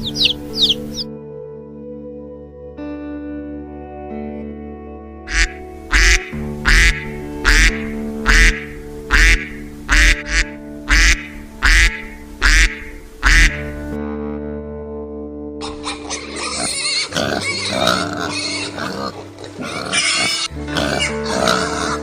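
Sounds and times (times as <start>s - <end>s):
duck quacking: 0.0s - 1.0s, 5.3s - 13.8s
calm background music: 0.0s - 22.0s.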